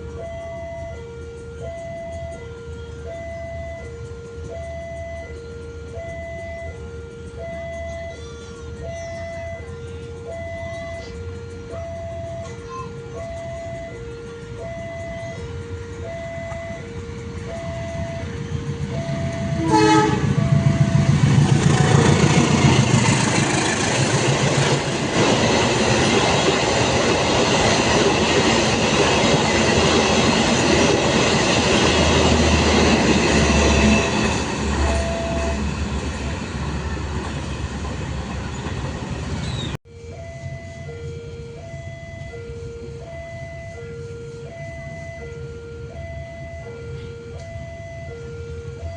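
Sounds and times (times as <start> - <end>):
crossing signal two-note tone: 0.0 - 23.2, 24.2 - 36.8, 39.5 - 48.9
train wheels rushing on rails: 0.0 - 39.8
train horn blast: 16.9 - 25.4, 30.2 - 37.1.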